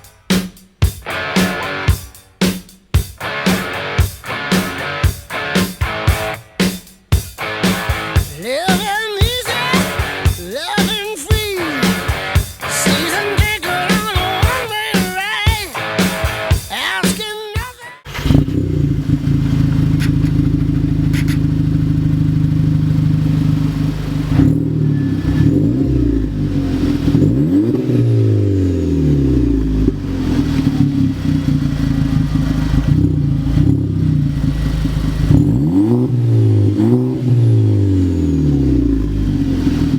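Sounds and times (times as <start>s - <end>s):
car engine running: 18.1s - 39.9s
engine throttle blips: 18.1s - 39.9s.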